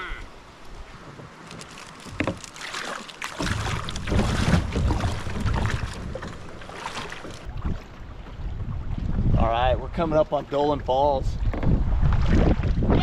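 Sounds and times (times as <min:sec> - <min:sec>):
water splashing around kayak: 0:00.3 - 0:13.0
wind rumble on microphone: 0:03.4 - 0:06.4, 0:07.4 - 0:13.0.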